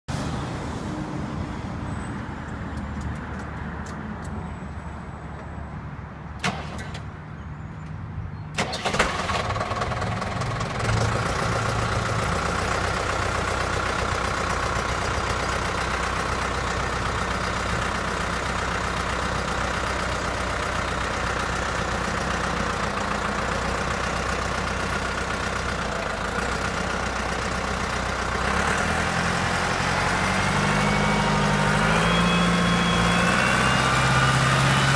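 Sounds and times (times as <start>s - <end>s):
tractor diesel engine running: 8.5s - 34.9s.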